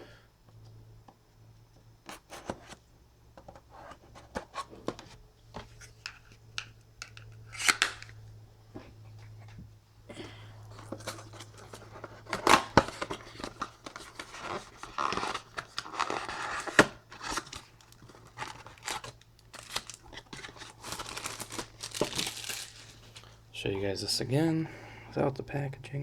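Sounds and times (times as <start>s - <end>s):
plastic wrapping tearing and crinkling: 7.5s - 8.1s, 10.9s - 23.4s.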